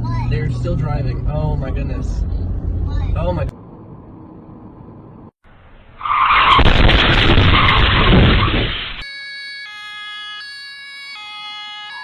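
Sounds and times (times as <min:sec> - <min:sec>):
loud rough rush with rumble: 0:00.0 - 0:09.0.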